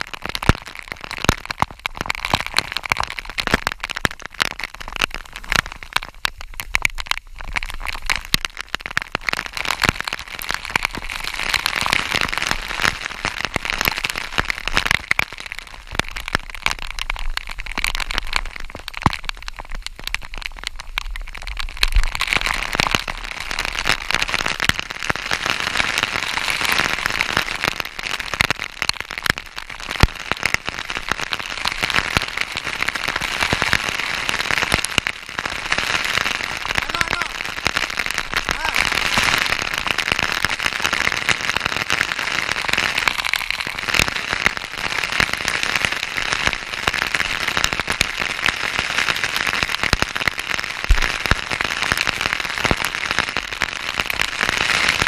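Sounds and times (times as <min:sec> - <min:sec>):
waterfall splashing: 0:36.8 - 0:37.6, 0:38.2 - 0:39.8.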